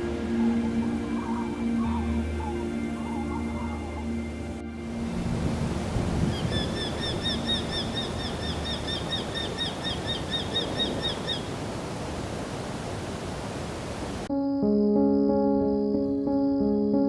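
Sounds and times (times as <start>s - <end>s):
bird calling sharp notes: 0.0s - 4.2s, 6.2s - 11.6s
music: 0.0s - 8.2s, 14.3s - 17.0s
outdoor noise haze: 0.0s - 14.3s.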